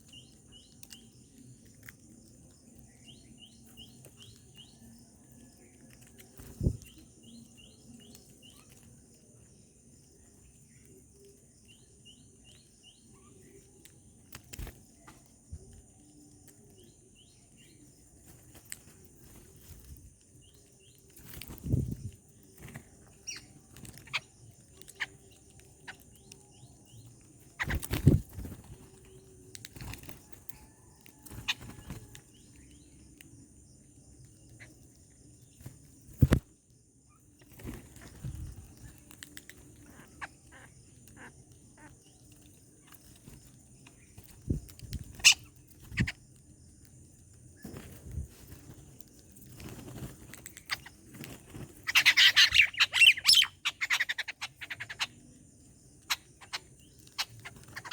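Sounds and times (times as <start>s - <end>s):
faint bird chirps: 0.0s - 57.9s
birds pecking and knocking: 27.1s - 32.5s
bird wings flapping: 27.6s - 28.8s, 36.2s - 36.4s.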